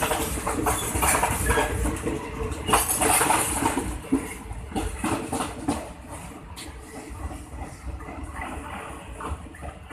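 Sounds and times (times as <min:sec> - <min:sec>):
train wheels knocking over rail joints: 0:00.0 - 0:06.0
low train rumble: 0:00.0 - 0:09.9.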